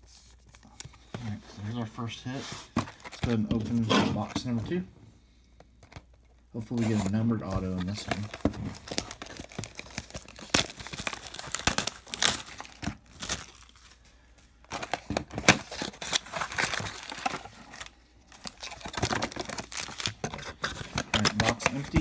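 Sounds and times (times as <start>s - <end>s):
plastic wrapping crinkling and tearing: 6.6s - 22.0s.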